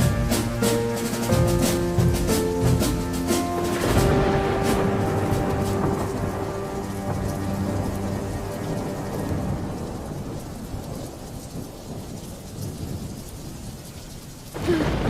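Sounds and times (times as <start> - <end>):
held music notes: 0.0 - 11.3
low rolling thunder: 0.0 - 15.0
rain falling: 0.0 - 15.0.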